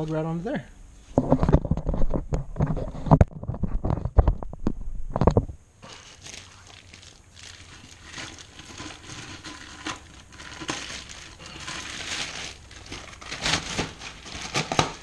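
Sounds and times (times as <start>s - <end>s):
rustling of handled parts: 5.3s - 15.0s.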